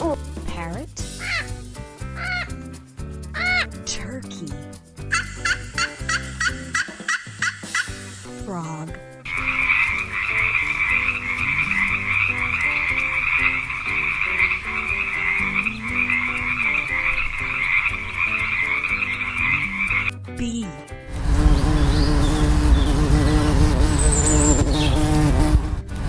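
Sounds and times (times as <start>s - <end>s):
frogs croaking in chorus: 2.2s - 2.5s, 9.3s - 20.0s.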